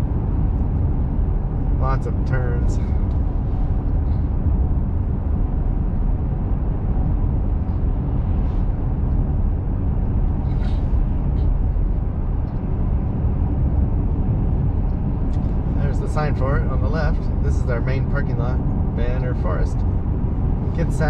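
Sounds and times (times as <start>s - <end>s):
truck engine rumble: 0.0s - 21.0s.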